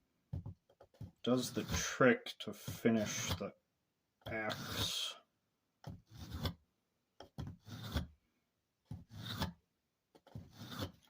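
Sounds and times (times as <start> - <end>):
hatchet blade scraping: 3.0 - 3.4, 6.1 - 6.6, 7.6 - 8.1, 9.1 - 9.6, 10.4 - 11.0.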